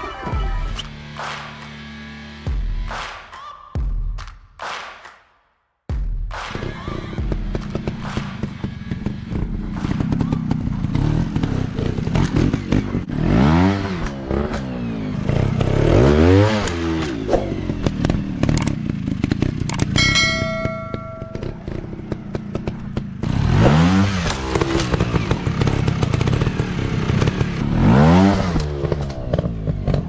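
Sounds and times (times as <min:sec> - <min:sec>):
dirt bike engine revving: 0:07.0 - 0:30.0
steady ringing tone: 0:20.0 - 0:22.1.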